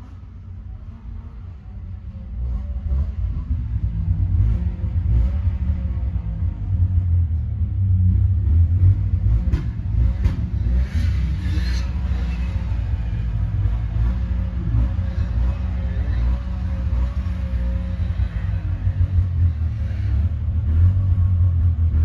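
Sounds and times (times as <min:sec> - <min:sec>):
snowmobile engine rumbling unevenly: 0:00.2 - 0:22.0.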